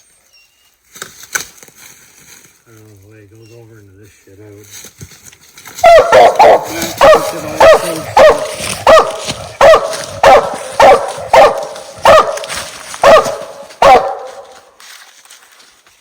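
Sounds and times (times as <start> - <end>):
dog barking: 5.8 - 14.7.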